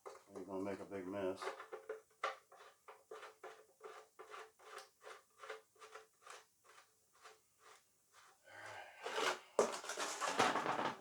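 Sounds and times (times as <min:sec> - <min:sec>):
faint scraping strokes: 0:02.5 - 0:10.3.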